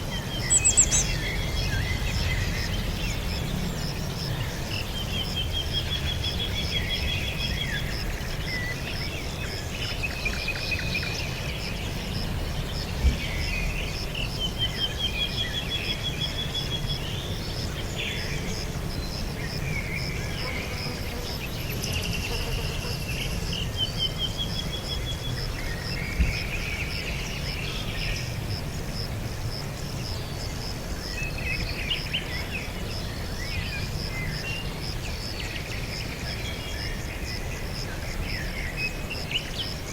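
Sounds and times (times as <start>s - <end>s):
pulsing insect trill: 0.0s - 26.0s
songbirds singing: 0.0s - 39.9s.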